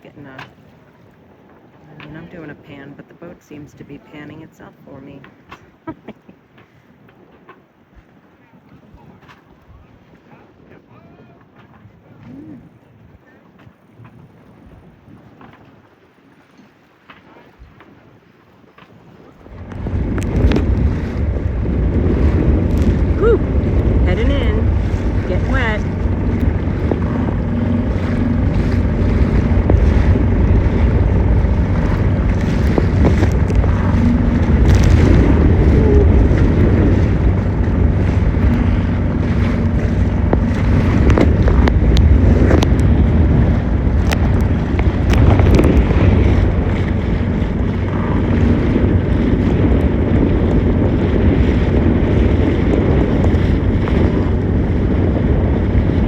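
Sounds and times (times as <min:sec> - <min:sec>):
water splashing against boat hull: 0:00.0 - 0:06.8, 0:11.2 - 0:56.0
wind buffeting microphone: 0:19.0 - 0:56.0.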